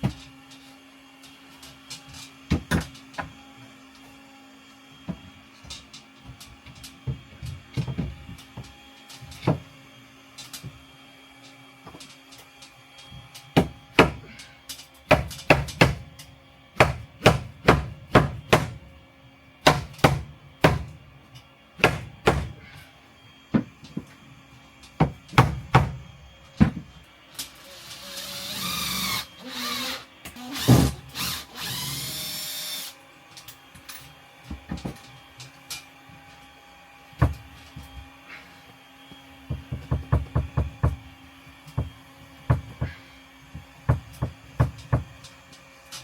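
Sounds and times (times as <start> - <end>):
hammer striking wood: 13.6 - 14.4, 15.1 - 16.0, 16.8 - 18.8, 19.6 - 20.9, 21.8 - 22.6, 25.0 - 26.0
power drill running: 27.6 - 33.0.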